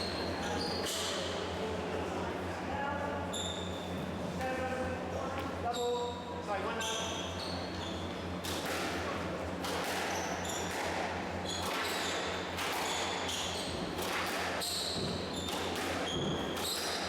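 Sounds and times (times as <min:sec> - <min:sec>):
shoe squeaks: 0:00.0 - 0:01.3, 0:03.3 - 0:04.2, 0:05.7 - 0:08.3, 0:10.1 - 0:10.7, 0:11.4 - 0:14.0, 0:14.6 - 0:17.0
squash ball struck by rackets: 0:08.4 - 0:17.0.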